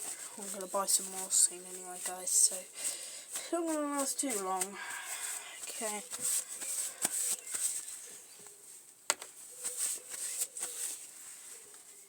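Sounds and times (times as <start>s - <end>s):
hands rustling objects: 0.0s - 12.0s.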